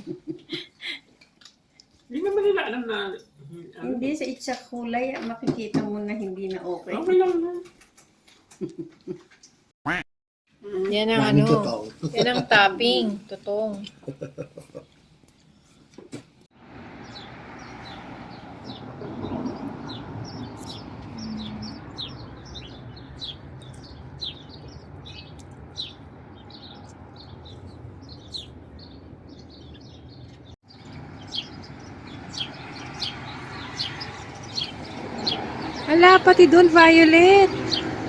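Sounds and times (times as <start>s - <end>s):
outdoor background hum: 10.7s - 38.0s
small songbirds chirping: 16.7s - 38.0s.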